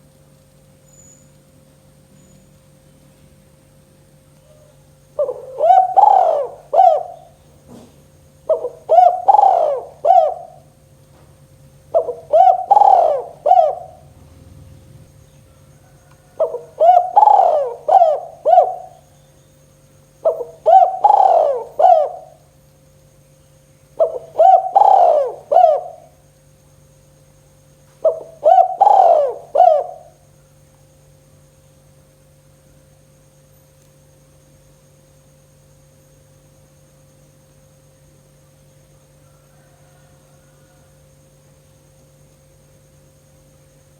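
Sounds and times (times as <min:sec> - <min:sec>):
steady low hum: 0:00.0 - 0:39.3
dove cooing: 0:04.5 - 0:10.9, 0:11.5 - 0:19.2, 0:20.2 - 0:22.5, 0:24.0 - 0:26.2, 0:28.0 - 0:30.2.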